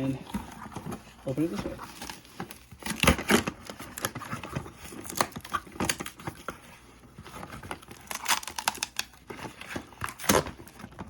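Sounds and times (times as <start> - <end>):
cardboard box being torn open: 7.5 - 10.9.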